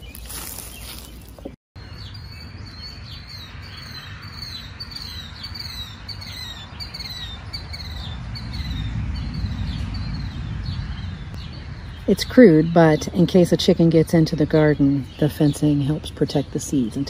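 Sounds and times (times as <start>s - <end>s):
songbird chirping: 0.0s - 17.0s
low rumble: 7.1s - 13.3s.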